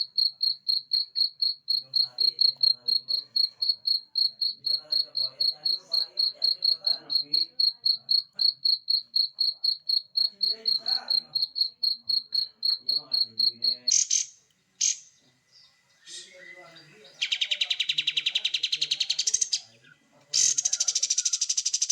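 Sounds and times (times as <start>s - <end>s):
insect chirping: 0.0s - 15.1s, 16.4s - 19.7s, 20.3s - 21.9s
sharp bird calls: 10.2s - 15.2s, 16.0s - 21.9s.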